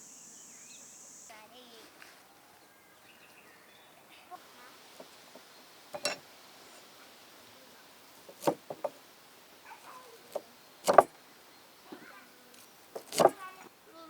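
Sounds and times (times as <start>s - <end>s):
short sharp knocks: 8.3s - 9.0s, 10.3s - 11.1s, 13.0s - 13.4s.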